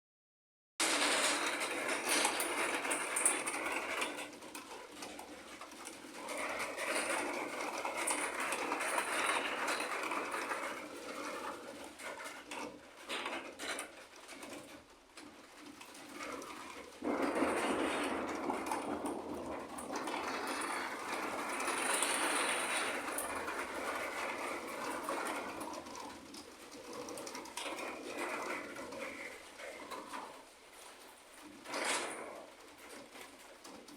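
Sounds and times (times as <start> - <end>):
thunder crack: 17.0 - 23.6
thunder rumbling: 17.0 - 24.3.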